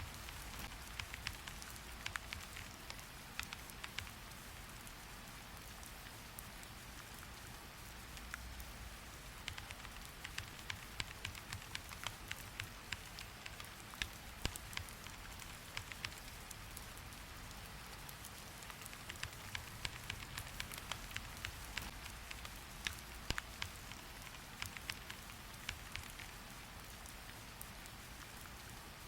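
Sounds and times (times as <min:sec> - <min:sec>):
sharp irregular clicks and taps: 0:00.0 - 0:04.4, 0:09.3 - 0:16.9, 0:18.2 - 0:27.7
steady rain: 0:00.0 - 0:29.0.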